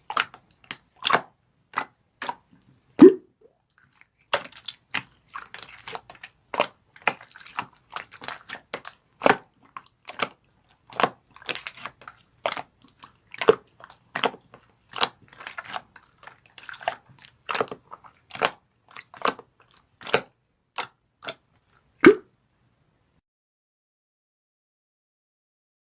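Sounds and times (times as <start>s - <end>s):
squishy craft material popping: 3.0s - 3.2s, 22.0s - 22.2s.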